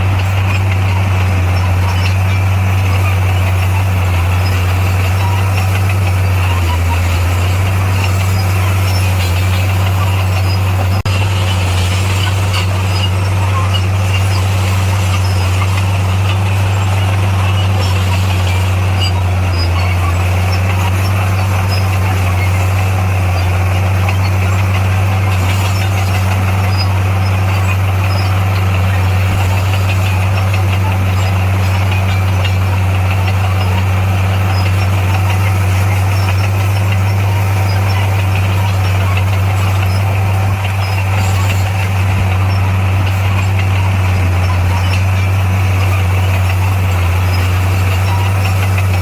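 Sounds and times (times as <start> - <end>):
diesel engine droning: 0.0 - 49.0.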